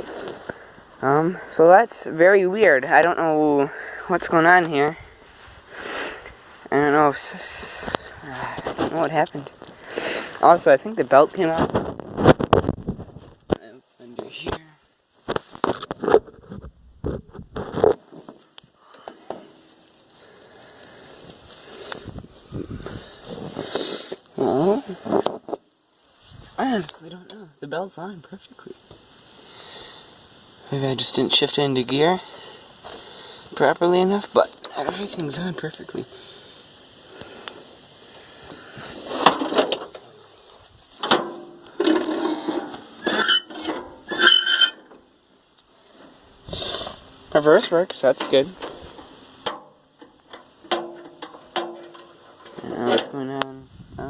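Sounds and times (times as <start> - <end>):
faint steady hiss: 0.0 - 54.0
handling clicks and rustles: 48.1 - 53.1.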